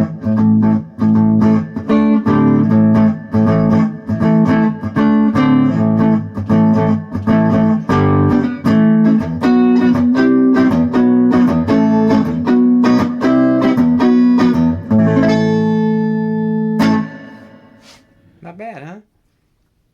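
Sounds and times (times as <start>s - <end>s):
electric guitar strumming chords: 0.0s - 18.0s.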